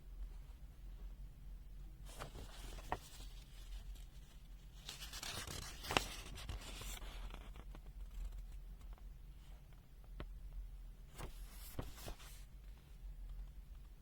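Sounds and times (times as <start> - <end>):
paper pages rustling: 2.0 - 8.5, 11.1 - 12.5.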